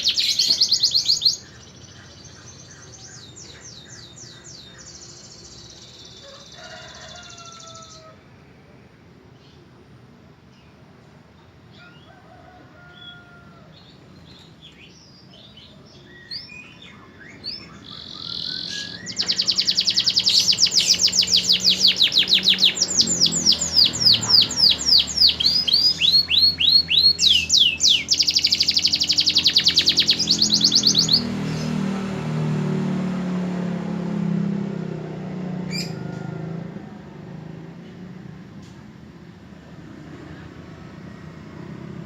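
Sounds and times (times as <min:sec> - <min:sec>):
canary singing trills: 0:00.0 - 0:08.1, 0:12.8 - 0:31.9, 0:35.6 - 0:36.3.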